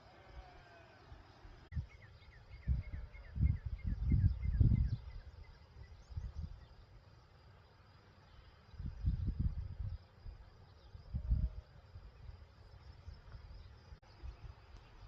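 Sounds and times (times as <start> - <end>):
wind buffeting microphone: 0.0 - 6.8, 8.6 - 15.0
small bird chirping: 0.4 - 7.0.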